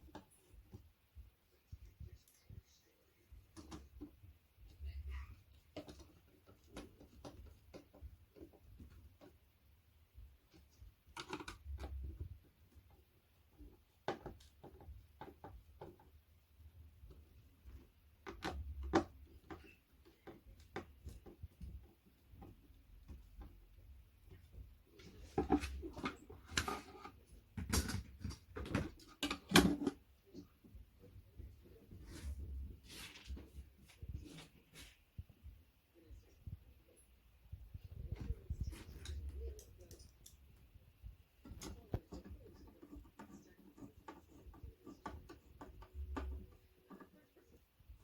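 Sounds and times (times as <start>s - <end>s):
furniture parts clicking and knocking: 10.2s - 32.7s.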